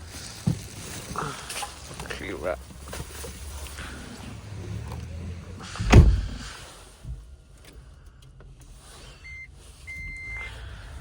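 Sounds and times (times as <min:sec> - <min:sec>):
heavy thump: 0:05.7 - 0:07.2.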